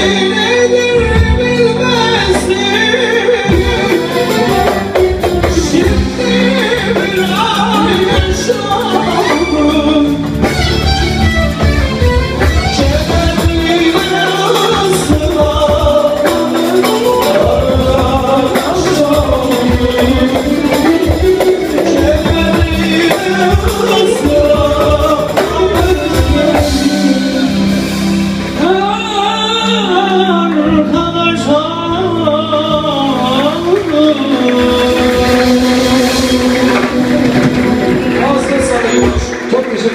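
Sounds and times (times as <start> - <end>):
live band music with guitar: 0.0 - 39.9
man singing: 0.0 - 39.9.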